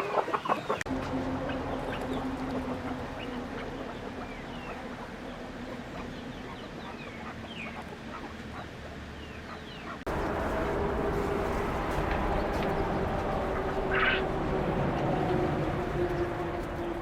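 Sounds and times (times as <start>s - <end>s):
low hum: 0.8s - 9.2s, 10.0s - 17.0s
loud steady noise: 0.9s - 17.0s
poultry chirping: 1.5s - 10.0s, 13.6s - 14.3s.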